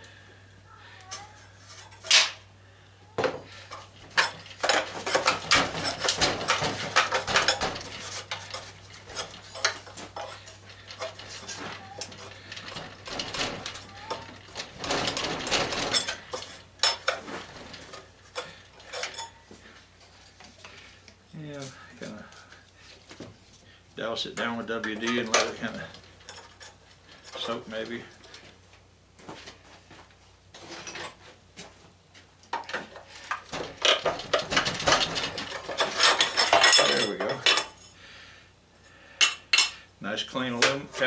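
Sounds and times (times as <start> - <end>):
metal tools clinking and scraping: 1.0 - 2.4, 3.4 - 20.8, 24.4 - 28.5, 30.5 - 31.3, 32.5 - 38.0, 39.2 - 41.0.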